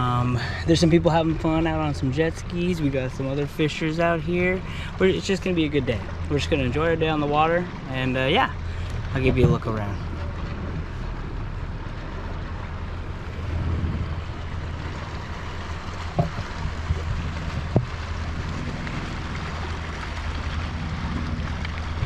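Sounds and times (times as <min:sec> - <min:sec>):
motorboat engine drone: 0:00.0 - 0:22.0
short sharp knocks: 0:16.1 - 0:17.0.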